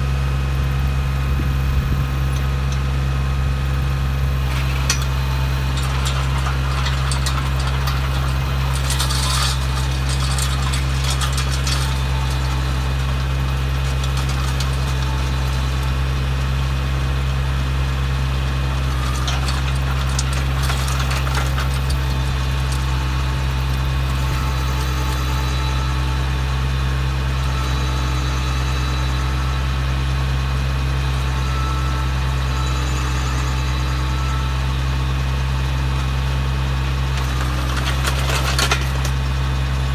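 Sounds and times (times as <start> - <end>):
tractor engine running: 0.0 - 39.9
auger rattling: 4.2 - 29.3, 35.9 - 39.9.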